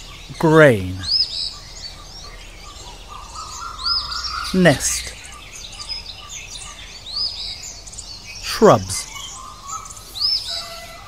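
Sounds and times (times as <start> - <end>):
high arched bird chirp: 0.0 - 1.9, 3.2 - 10.7
soft faint bird calls: 0.0 - 11.0.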